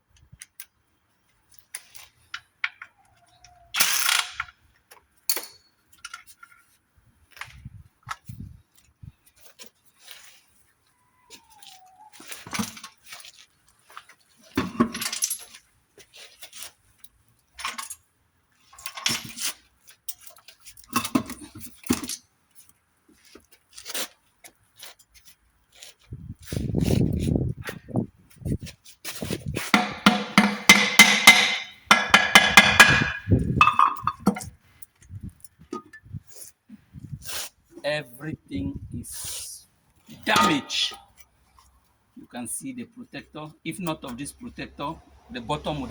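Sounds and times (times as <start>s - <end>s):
metal tools clinking and clattering: 5.3s - 6.6s, 14.5s - 15.6s, 29.7s - 34.6s, 35.3s - 36.2s.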